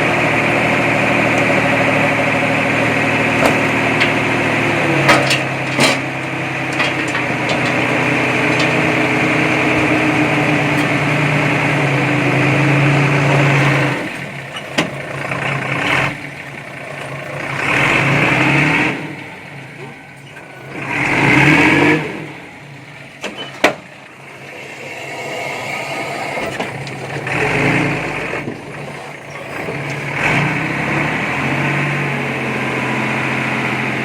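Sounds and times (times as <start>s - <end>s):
heavy machine engine running: 0.0s - 34.0s
sharp metal knocks and clanks: 5.0s - 9.1s.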